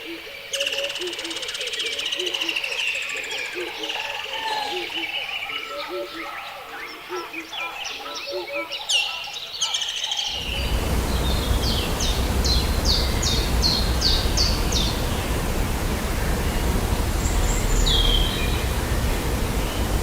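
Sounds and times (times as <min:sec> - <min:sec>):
loud rushing noise: 0:10.3 - 0:20.0.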